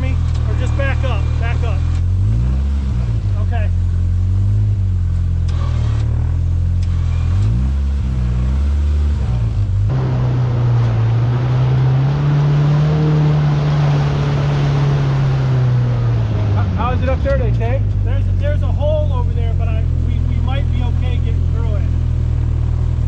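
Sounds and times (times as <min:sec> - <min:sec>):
off-road vehicle engine revving: 0:00.0 - 0:23.0
rushing noise: 0:09.9 - 0:17.2.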